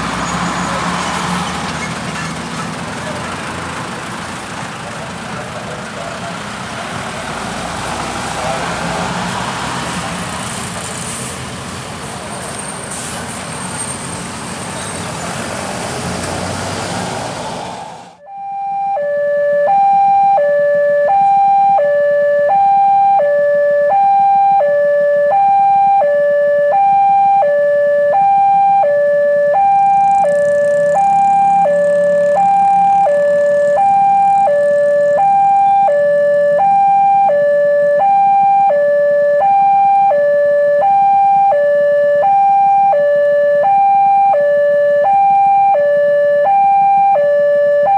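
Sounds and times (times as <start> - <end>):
vehicle noise: 0.0 - 47.9
level crossing two-tone alarm: 18.2 - 47.9.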